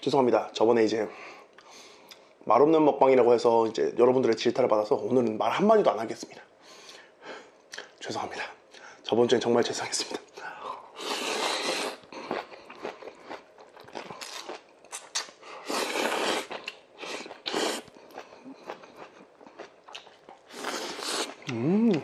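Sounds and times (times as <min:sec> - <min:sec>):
close-miked chewing: 0:11.0 - 0:22.0.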